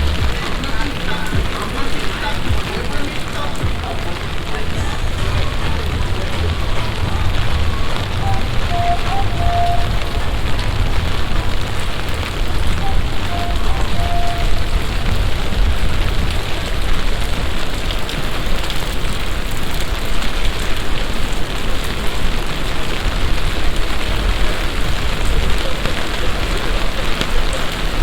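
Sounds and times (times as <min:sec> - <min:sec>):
heavy rain hissing: 0:00.0 - 0:28.0
low rumble: 0:03.6 - 0:17.6.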